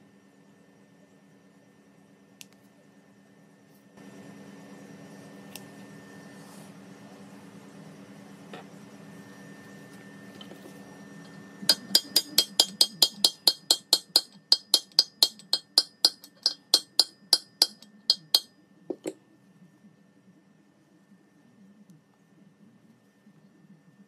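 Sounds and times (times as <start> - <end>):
hammer tapping on metal: 11.6 - 19.2.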